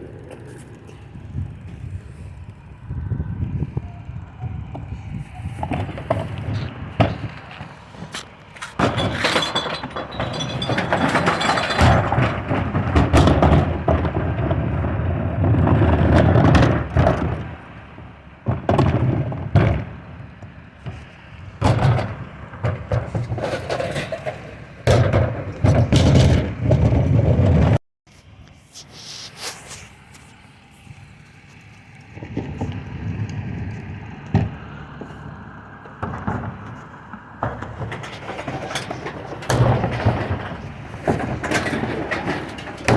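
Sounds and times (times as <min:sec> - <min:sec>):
truck engine rumble: 0:00.0 - 0:42.9
glass bottles crashing and clinking: 0:08.8 - 0:12.1.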